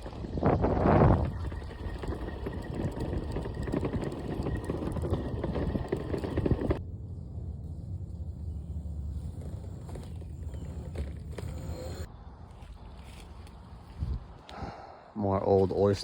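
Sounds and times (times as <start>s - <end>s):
wind buffeting microphone: 0.0s - 6.8s, 13.9s - 14.8s
footsteps crunching on forest floor: 12.4s - 14.4s.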